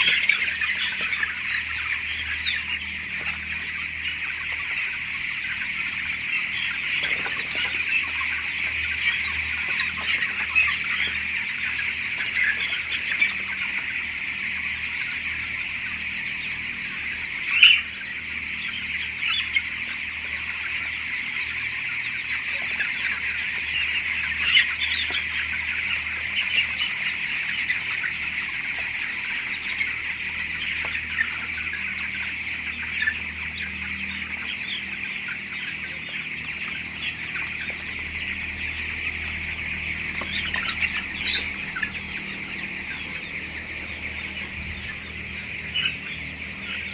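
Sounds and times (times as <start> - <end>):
chicks peeping: 0.0 - 46.9
low steady hum: 0.0 - 46.9.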